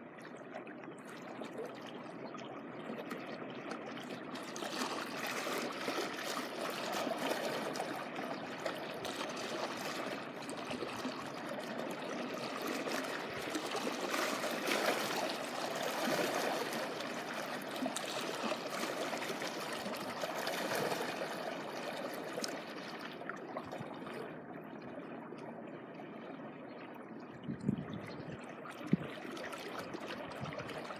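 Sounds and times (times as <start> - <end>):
small waves washing over shoreline: 12.1 - 23.0.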